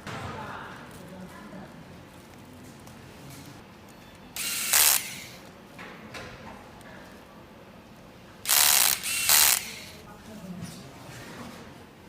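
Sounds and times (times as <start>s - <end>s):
electric screwdriver driving screws: 4.4s - 5.4s, 8.5s - 10.0s.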